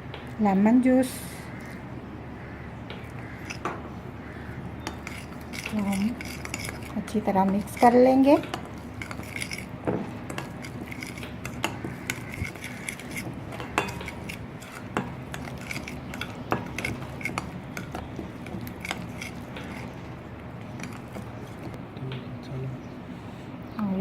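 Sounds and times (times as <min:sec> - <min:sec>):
spoon stirring thick mixture: 0:04.4 - 0:21.8
spoon clinking against bowl: 0:10.3 - 0:19.4.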